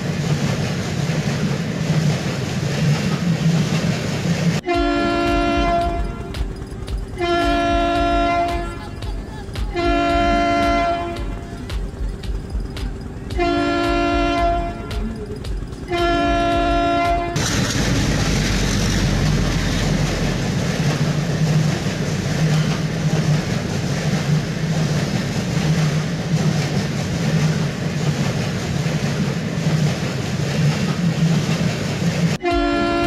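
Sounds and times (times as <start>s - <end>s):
train rumbling and rolling: 0.0s - 33.0s
train horn blowing: 4.6s - 6.4s, 7.2s - 8.9s, 9.7s - 11.7s, 13.3s - 15.2s, 15.9s - 17.5s, 32.4s - 33.0s.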